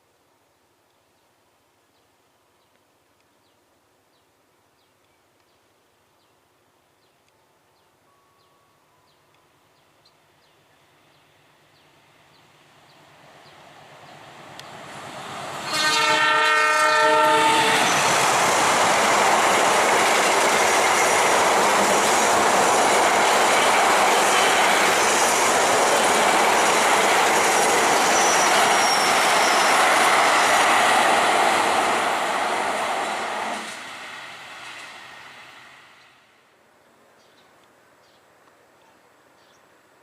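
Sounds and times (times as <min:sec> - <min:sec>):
train rushing past: 0:11.6 - 0:36.4
train horn: 0:15.6 - 0:18.1, 0:28.0 - 0:29.9
wheels clacking on rails: 0:17.4 - 0:34.9.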